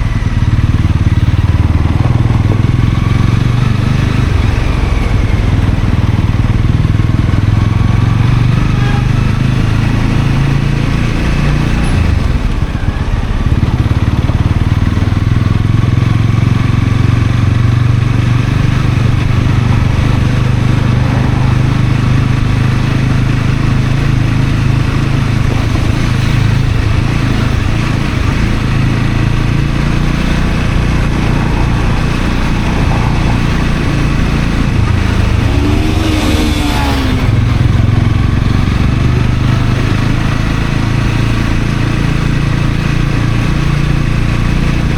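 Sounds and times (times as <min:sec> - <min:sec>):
motorcycle engine running: 0:00.0 - 0:44.9
sound rising and falling in pitch: 0:30.2 - 0:38.2.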